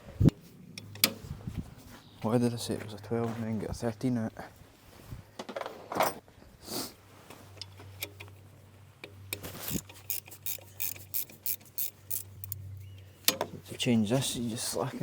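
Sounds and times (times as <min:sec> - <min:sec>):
spanner clicking on a bolt: 0:09.0 - 0:12.6.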